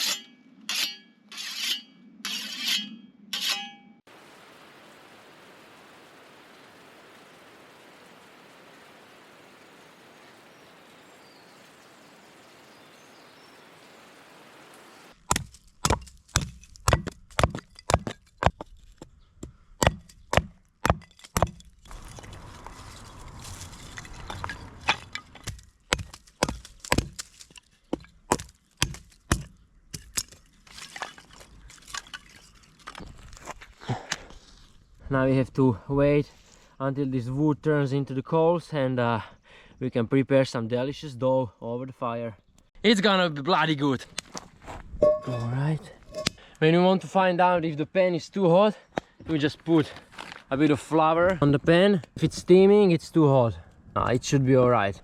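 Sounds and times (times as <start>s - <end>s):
faint steady hiss: 4.1s - 15.2s
dry sticks snapping: 19.8s - 33.0s.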